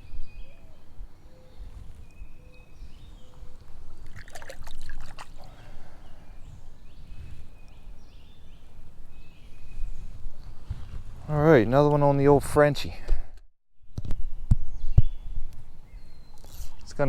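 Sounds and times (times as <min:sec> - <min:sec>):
stream water trickling: 0:03.6 - 0:05.6
water splashing: 0:03.9 - 0:05.5.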